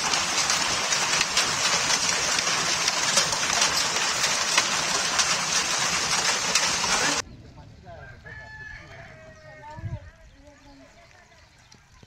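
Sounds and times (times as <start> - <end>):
heavy rain hiss: 0.0 - 7.2
sharp taps of raindrops: 0.0 - 7.2.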